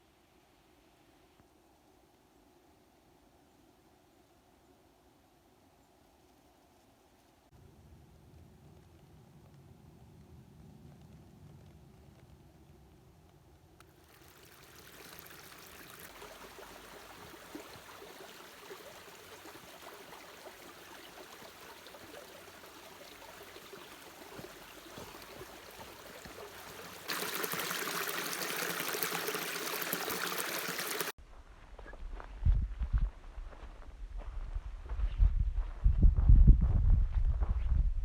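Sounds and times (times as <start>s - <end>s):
stream water rushing: 14.0s - 31.2s.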